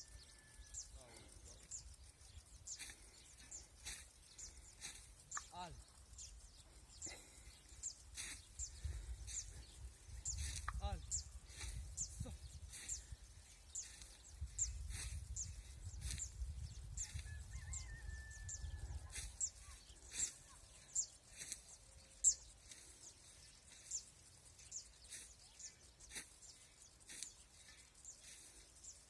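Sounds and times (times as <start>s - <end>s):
small bird chirping: 0.0s - 29.0s
wind on microphone: 14.2s - 19.5s.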